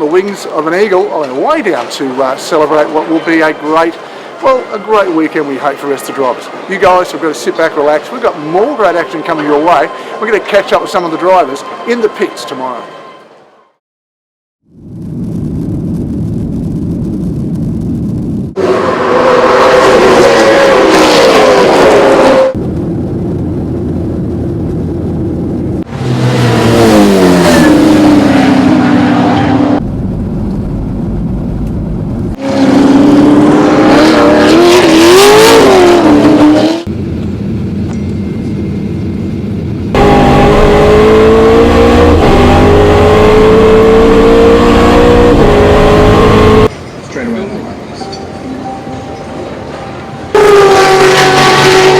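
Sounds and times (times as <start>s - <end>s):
race car engines at speed: 18.6s - 22.8s, 25.3s - 31.0s, 32.2s - 46.7s, 50.3s - 51.9s.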